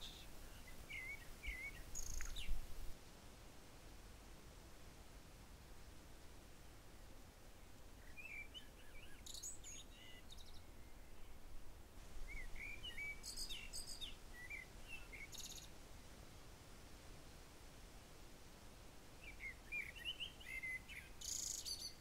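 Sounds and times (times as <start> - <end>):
songbirds chirping and warbling: 0.0 - 2.9, 8.0 - 11.4, 12.1 - 15.7, 19.2 - 22.0.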